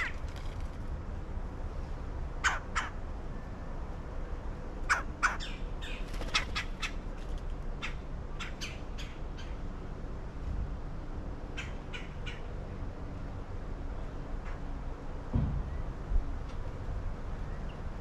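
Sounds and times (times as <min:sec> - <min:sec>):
birds calling in sharp notes: 0:04.9 - 0:07.0.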